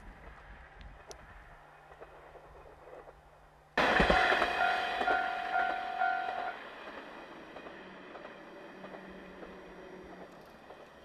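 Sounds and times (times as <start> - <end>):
diesel railcar passing: 0.0 - 11.0
train horn blasts: 3.8 - 6.6.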